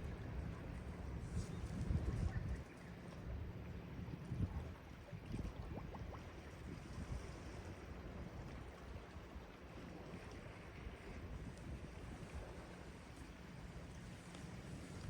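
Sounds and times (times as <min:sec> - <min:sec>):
wind on microphone: 0:01.1 - 0:02.7, 0:04.0 - 0:07.4.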